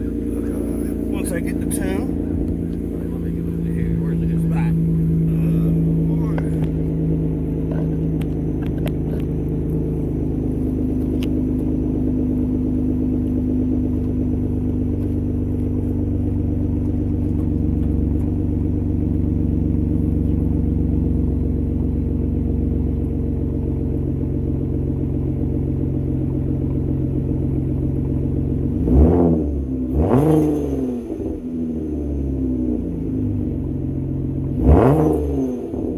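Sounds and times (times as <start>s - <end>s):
car engine idling and revving: 0.0s - 35.9s.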